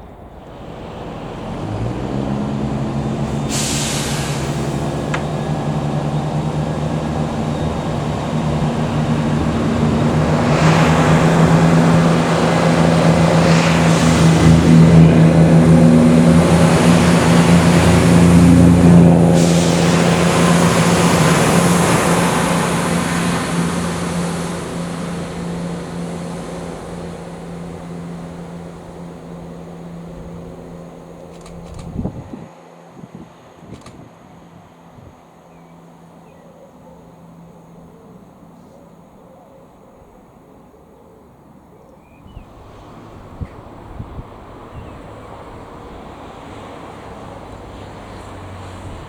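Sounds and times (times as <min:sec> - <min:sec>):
train wheel noise: 0:00.0 - 0:32.5
train engine hum: 0:00.0 - 0:49.0.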